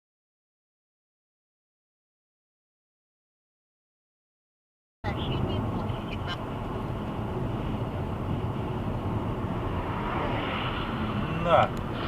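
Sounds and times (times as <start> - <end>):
vehicle engine and road rumble: 5.0 - 12.0.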